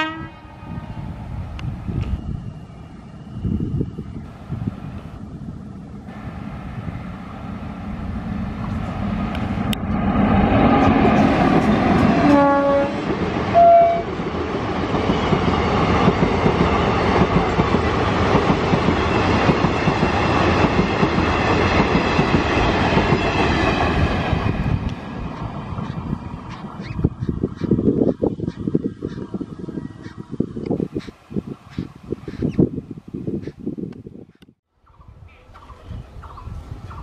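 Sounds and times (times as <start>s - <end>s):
train horn blasts: 0.0s - 1.1s, 12.1s - 14.1s
train rumbling past: 0.0s - 33.4s.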